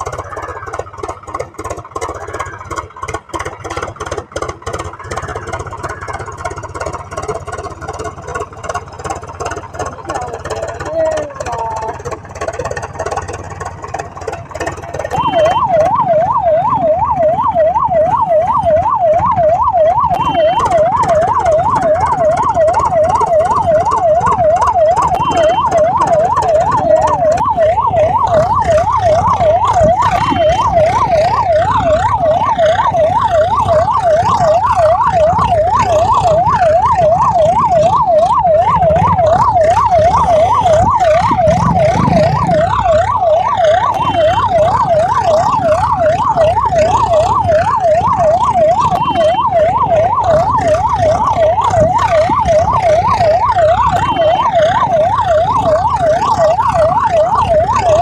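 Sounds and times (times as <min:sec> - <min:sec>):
electronic siren wailing: 0:00.0 - 0:58.0
short high beep: 0:15.2 - 0:15.7, 0:20.2 - 0:20.7, 0:25.2 - 0:25.7, 0:44.0 - 0:44.5.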